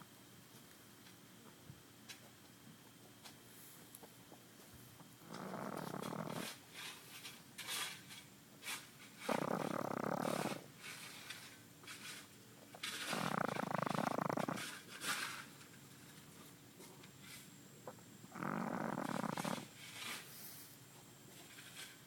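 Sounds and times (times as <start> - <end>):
dog snoring: 5.1 - 8.0, 8.7 - 15.5, 17.8 - 20.6
dog breathing: 5.2 - 7.3, 8.8 - 15.5, 18.3 - 20.8.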